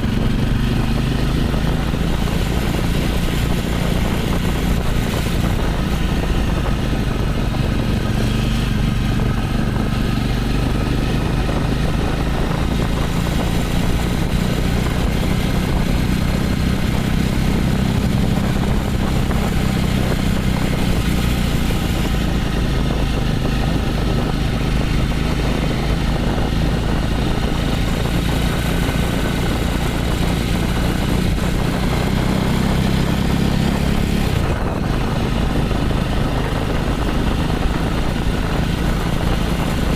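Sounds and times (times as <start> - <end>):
motorcycle engine idling: 0.0 - 30.9.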